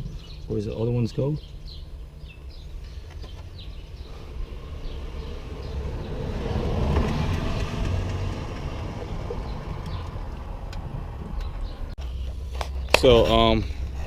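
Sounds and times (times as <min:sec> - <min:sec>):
bird chirps: 0:00.0 - 0:06.2, 0:09.0 - 0:10.2
vehicle passing by: 0:02.5 - 0:11.9.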